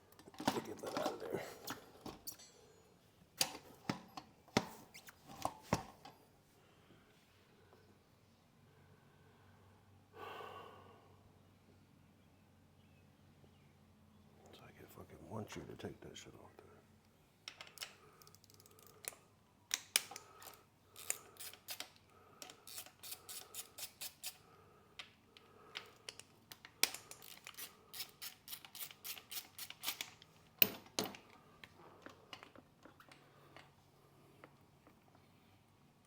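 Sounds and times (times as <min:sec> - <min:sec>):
metallic clicks of hand tools: 0:17.5 - 0:24.4, 0:25.7 - 0:32.6.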